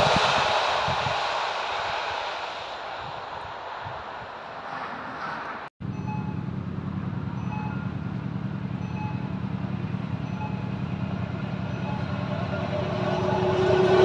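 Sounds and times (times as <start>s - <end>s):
train rumbling: 0.0s - 14.0s
faint short ringing tones: 5.8s - 6.6s, 7.3s - 8.0s, 8.8s - 9.4s, 10.1s - 10.9s.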